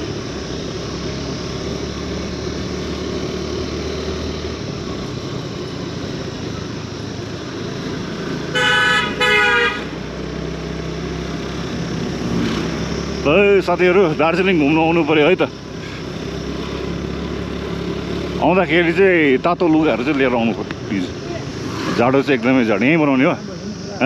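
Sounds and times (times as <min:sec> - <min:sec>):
motorcycle engine and road noise: 0:00.0 - 0:24.0
vehicle horn honks: 0:08.5 - 0:10.0.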